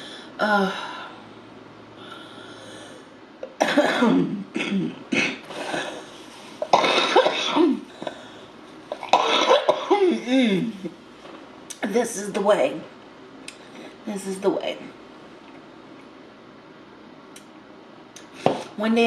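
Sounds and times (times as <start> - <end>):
woman coughing: 3.6 - 6.0, 6.6 - 7.9, 9.1 - 10.7.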